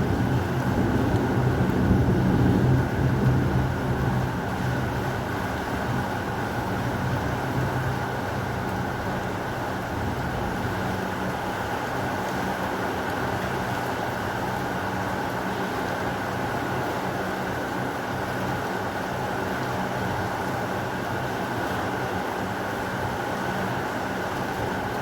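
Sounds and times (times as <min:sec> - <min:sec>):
rumble of thunder: 0:00.0 - 0:06.2
heavy rain falling: 0:00.0 - 0:25.0.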